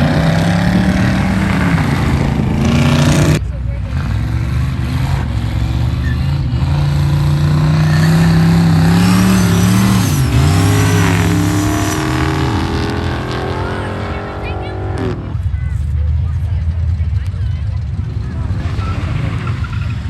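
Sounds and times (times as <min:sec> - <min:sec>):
racing car engine accelerating: 0:00.0 - 0:15.5.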